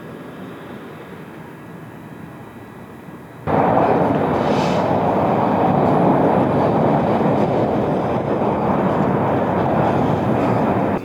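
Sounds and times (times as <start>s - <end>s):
moving vehicle rumbling: 3.5s - 11.0s.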